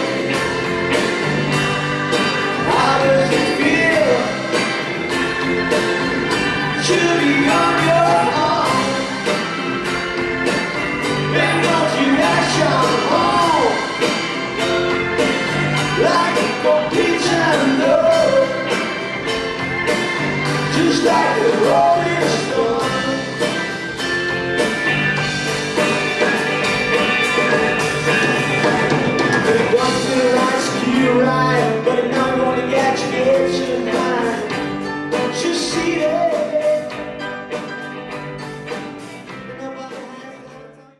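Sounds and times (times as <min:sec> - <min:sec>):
person singing: 0:00.0 - 0:04.7, 0:06.5 - 0:09.5, 0:11.1 - 0:14.3, 0:15.4 - 0:19.0, 0:20.6 - 0:23.7, 0:29.3 - 0:37.2
drums steady beat: 0:00.0 - 0:40.7
rock band playing live: 0:00.0 - 0:40.9.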